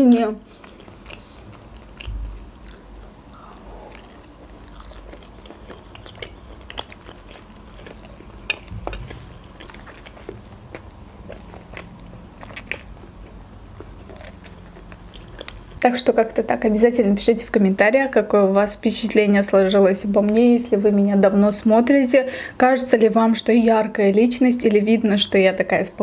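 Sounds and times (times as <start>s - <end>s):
chewing with wet clicks: 0.1s - 3.1s, 3.9s - 15.9s.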